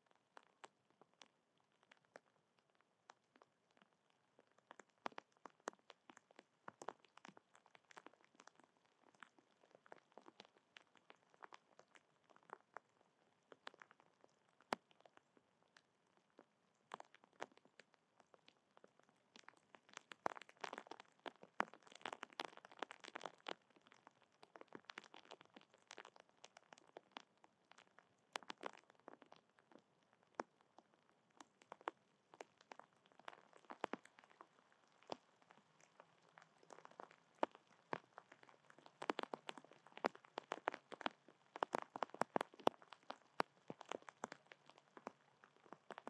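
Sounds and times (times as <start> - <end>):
animal cracking and chewing seeds: 38.9 - 44.8.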